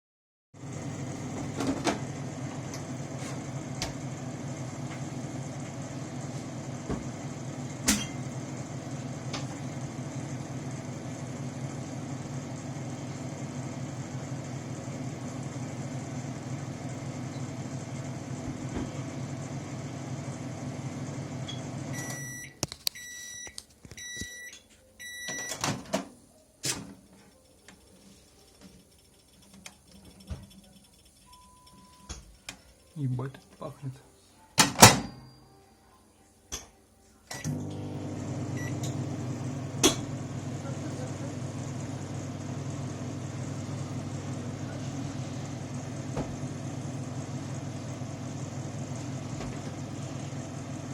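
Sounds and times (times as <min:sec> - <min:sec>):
microwave oven humming: 0:00.6 - 0:26.0, 0:37.3 - 0:50.9
microwave beeps: 0:21.4 - 0:25.8, 0:31.2 - 0:32.2, 0:34.7 - 0:35.6, 0:37.3 - 0:39.9.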